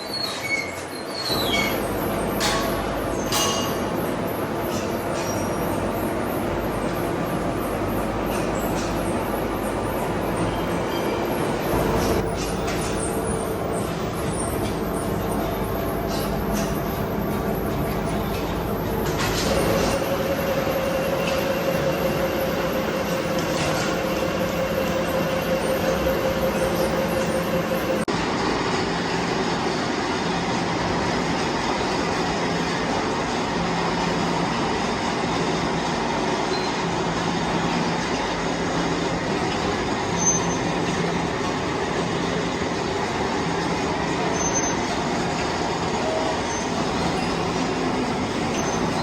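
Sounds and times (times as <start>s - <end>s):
machine tool rumbling: 1.3s - 28.1s
metallic whine: 1.3s - 28.1s.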